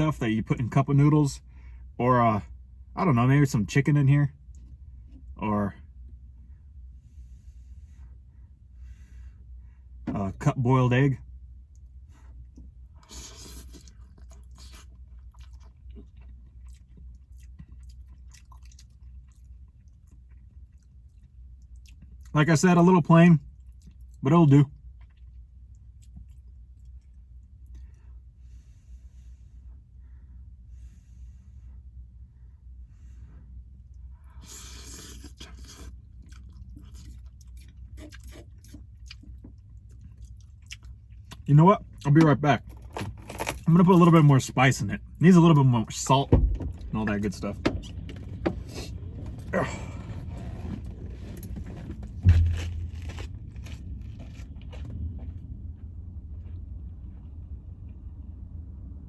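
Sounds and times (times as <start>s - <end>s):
steady low hum: 0.0s - 59.0s
person chewing noodles: 11.8s - 22.3s, 23.5s - 24.2s, 24.8s - 28.0s, 34.2s - 42.0s, 51.8s - 54.9s.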